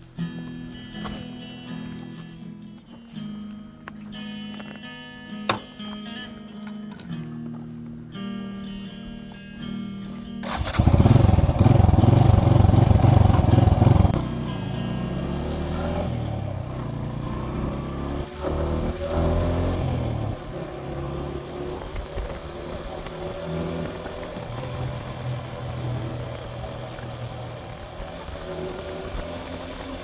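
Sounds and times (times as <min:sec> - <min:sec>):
motorcycle engine running: 0:10.4 - 0:30.0.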